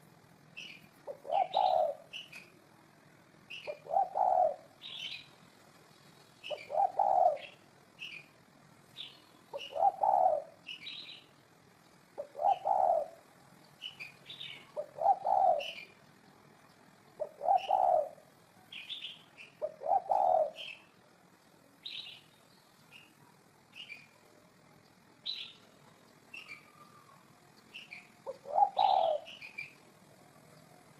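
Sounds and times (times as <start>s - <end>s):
birds chirping: 0.0s - 2.7s, 3.4s - 30.9s
dove cooing: 0.6s - 2.5s, 3.5s - 5.2s, 6.4s - 8.3s, 9.0s - 11.1s, 12.2s - 16.0s, 17.2s - 21.0s, 26.4s - 30.9s.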